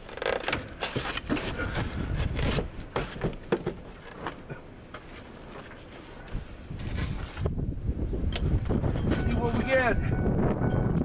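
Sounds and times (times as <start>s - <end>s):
rubbing and scraping: 0.0s - 7.6s.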